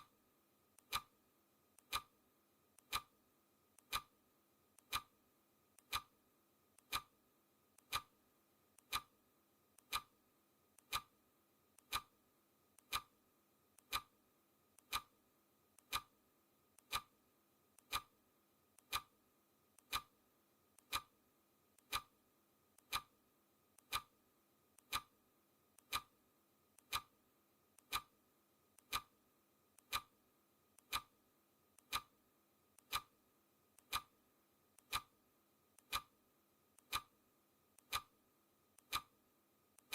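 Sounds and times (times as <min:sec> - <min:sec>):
clock ticking: 0:00.8 - 0:01.2, 0:01.8 - 0:02.2, 0:02.8 - 0:03.2, 0:03.8 - 0:04.2, 0:04.8 - 0:05.2, 0:05.8 - 0:06.2, 0:06.8 - 0:07.2, 0:07.8 - 0:08.2, 0:08.8 - 0:09.2, 0:09.8 - 0:10.2, 0:10.8 - 0:11.2, 0:11.8 - 0:12.2, 0:12.8 - 0:13.2, 0:13.8 - 0:14.2, 0:14.8 - 0:15.2, 0:15.8 - 0:16.2, 0:16.8 - 0:17.2, 0:17.8 - 0:18.2, 0:18.8 - 0:19.2, 0:19.8 - 0:20.2, 0:20.8 - 0:21.2, 0:21.8 - 0:22.2, 0:22.8 - 0:23.2, 0:23.8 - 0:24.2, 0:24.8 - 0:25.2, 0:25.8 - 0:26.2, 0:26.8 - 0:27.2, 0:27.8 - 0:28.2, 0:28.8 - 0:29.2, 0:29.8 - 0:30.2, 0:30.8 - 0:31.2, 0:31.8 - 0:32.2, 0:32.8 - 0:33.2, 0:33.8 - 0:34.2, 0:34.8 - 0:35.2, 0:35.8 - 0:36.2, 0:36.8 - 0:37.2, 0:37.8 - 0:38.2, 0:38.8 - 0:39.2.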